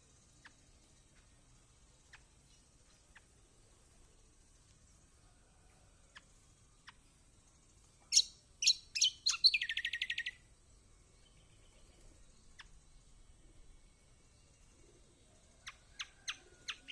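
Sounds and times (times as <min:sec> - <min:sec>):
bird calling: 0:08.1 - 0:10.4.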